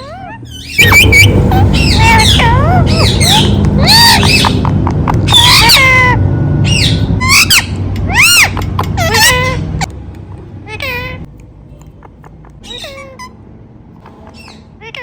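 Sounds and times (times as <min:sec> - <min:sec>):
parrot squawking and whistling: 0:00.0 - 0:09.6, 0:12.6 - 0:13.4.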